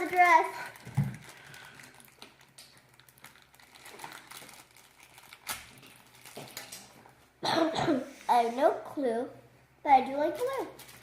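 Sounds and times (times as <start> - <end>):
plastic wrappers crinkling: 0.0 - 7.2, 10.2 - 11.0.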